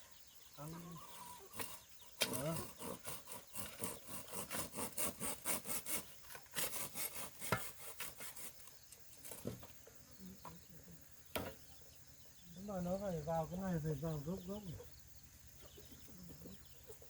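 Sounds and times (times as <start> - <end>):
hand saw rasping through bamboo: 1.2 - 8.7.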